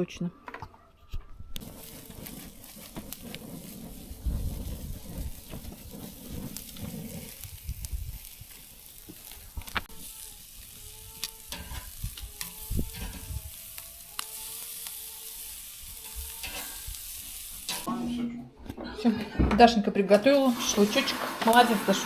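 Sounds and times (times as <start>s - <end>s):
fire crackles and pops: 1.6s - 17.9s
meat sizzling over campfire: 1.6s - 17.9s, 20.2s - 22.0s.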